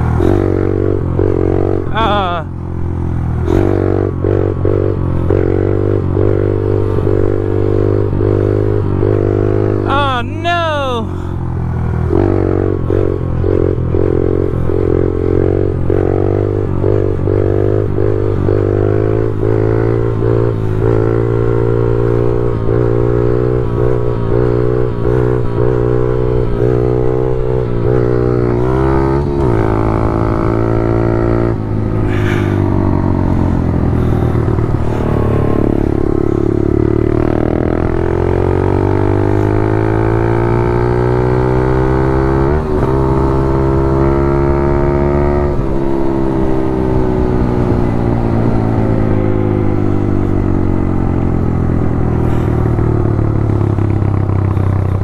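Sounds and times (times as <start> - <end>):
small engine revving: 12.0 - 55.0.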